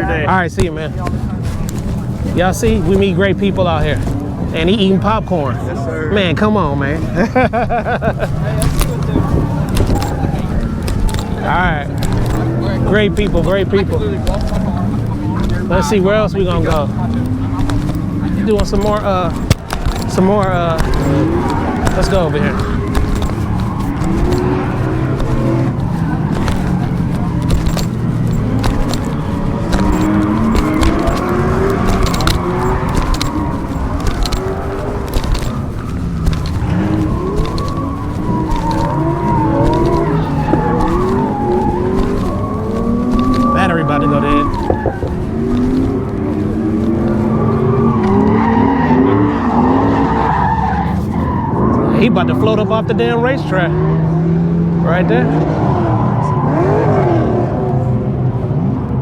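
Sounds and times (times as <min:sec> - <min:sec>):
car engine running: 0:00.0 - 0:05.6, 0:06.6 - 0:48.4
tyres screeching: 0:07.8 - 0:52.1.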